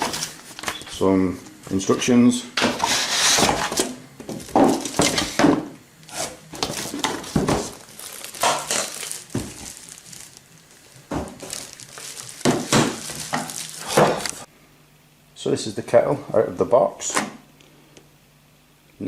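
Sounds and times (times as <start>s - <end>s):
packaging rustling and crinkling: 6.1s - 14.5s.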